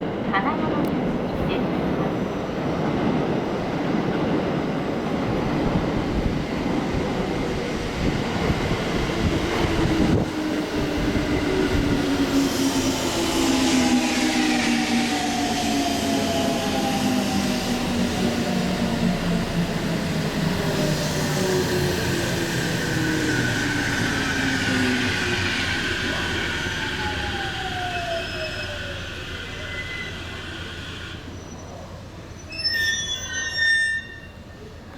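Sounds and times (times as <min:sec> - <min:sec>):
train wheels rumbling on rails: 0:00.0 - 0:32.3
humming tone of braking train: 0:07.7 - 0:34.9.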